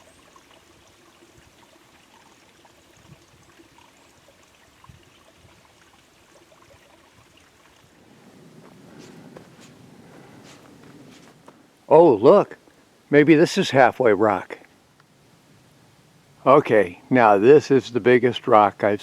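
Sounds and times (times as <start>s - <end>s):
faint running water: 0.0s - 19.0s
footsteps on a trail: 8.0s - 11.7s
rustling: 8.0s - 11.8s.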